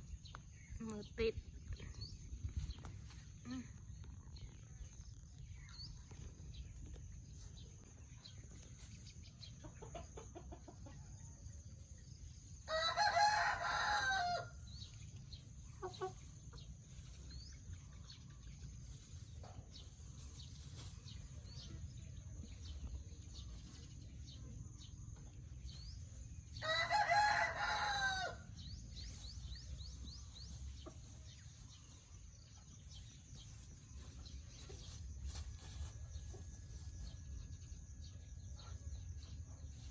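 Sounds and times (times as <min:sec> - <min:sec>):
rooster crowing: 0:12.7 - 0:14.6, 0:26.6 - 0:28.5.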